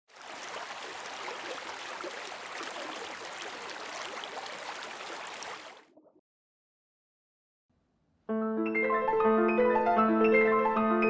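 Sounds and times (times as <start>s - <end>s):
running water bubbling: 0.1s - 5.9s.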